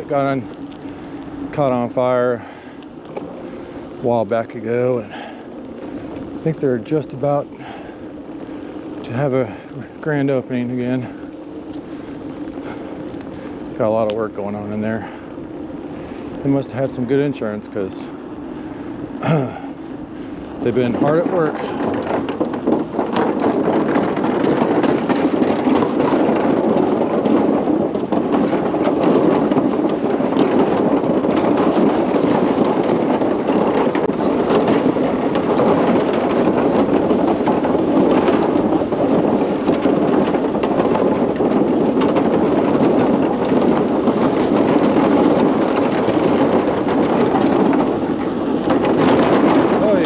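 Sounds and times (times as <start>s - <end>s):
wind buffeting microphone: 0.0s - 50.0s.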